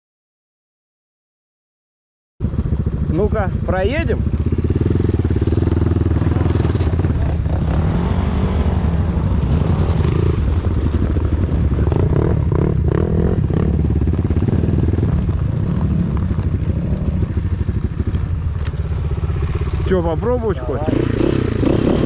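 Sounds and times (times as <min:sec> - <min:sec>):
motorcycle engine revving: 0:02.4 - 0:22.0.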